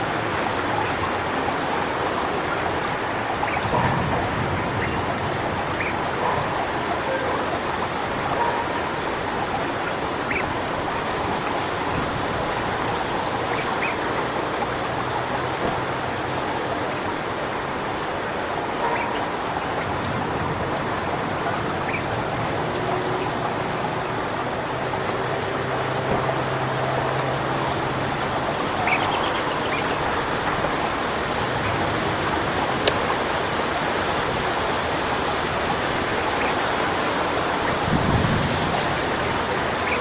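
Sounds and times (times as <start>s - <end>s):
wind rustling palm fronds: 0.0s - 40.0s.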